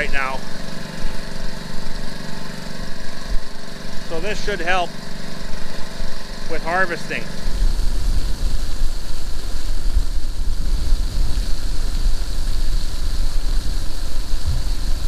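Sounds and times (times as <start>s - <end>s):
vehicle engine running: 0.0s - 15.0s
wind buffeting microphone: 7.5s - 15.0s.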